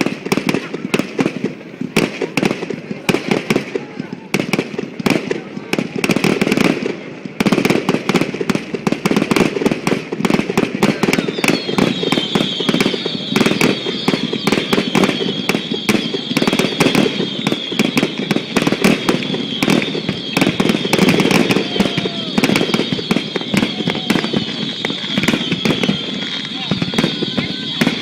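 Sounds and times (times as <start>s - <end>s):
fireworks bangs: 0.0s - 28.0s.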